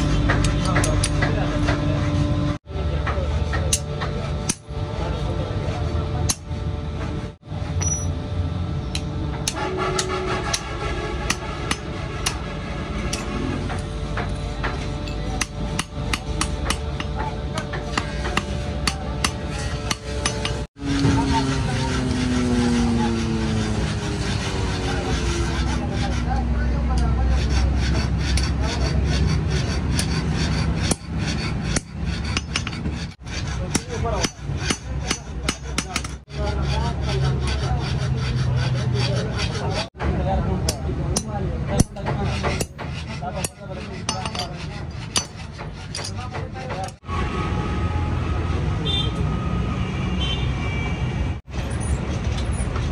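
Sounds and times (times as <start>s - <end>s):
hammer striking metal: 0.0s - 2.2s, 3.0s - 4.8s, 6.2s - 6.6s, 7.7s - 8.2s, 8.9s - 26.2s, 26.9s - 36.6s, 39.1s - 47.0s
steady low hum: 0.0s - 37.6s
hand tools tapping metal knife: 40.7s - 47.0s.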